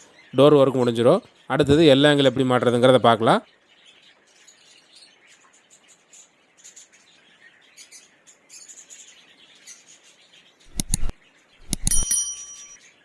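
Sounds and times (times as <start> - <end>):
small birds chirping: 0.0 - 13.0
metal clattering with ringing: 11.6 - 12.9.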